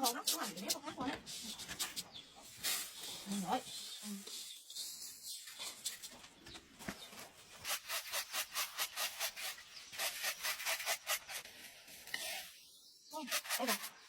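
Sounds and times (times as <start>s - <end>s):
quick scraping strokes: 7.6s - 12.6s, 13.2s - 14.0s.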